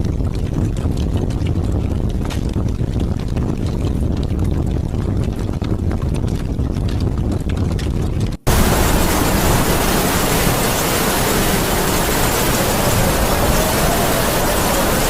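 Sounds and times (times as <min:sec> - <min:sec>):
faint howling wind: 0:08.5 - 0:15.0
heavy rain hiss: 0:08.5 - 0:15.0
low rumbling noise: 0:08.5 - 0:15.0.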